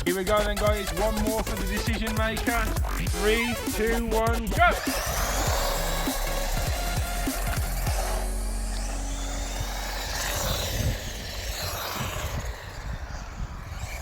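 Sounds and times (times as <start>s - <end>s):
tyre noise on tarmac: 0.7s - 14.0s
electric motor whine: 4.5s - 14.0s.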